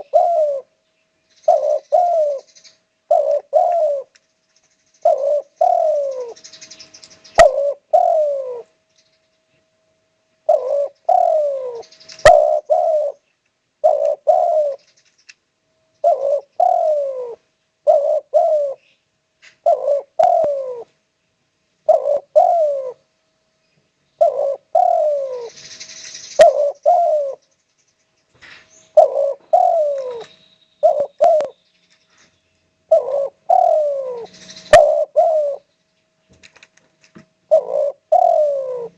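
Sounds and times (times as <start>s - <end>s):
dove cooing: 0.0s - 0.8s, 1.4s - 4.2s, 5.0s - 8.8s, 10.4s - 15.1s, 16.0s - 19.0s, 19.6s - 21.0s, 21.8s - 23.1s, 24.2s - 27.4s, 28.4s - 35.7s, 37.4s - 38.9s.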